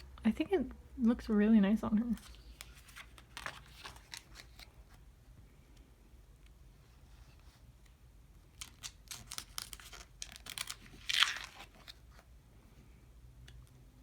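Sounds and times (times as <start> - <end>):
paper pages rustling: 2.1 - 5.0, 8.5 - 12.3
stuck pages pulled apart: 8.6 - 12.2.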